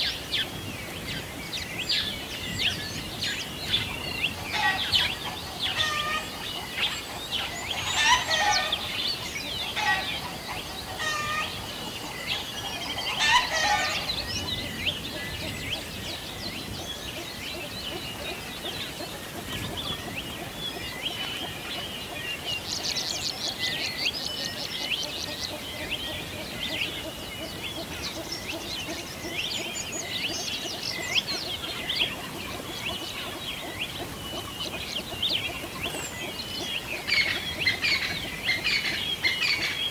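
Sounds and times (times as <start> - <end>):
birds chirping and calling: 0.0 - 39.9
lower repeated bird calls: 0.0 - 39.9.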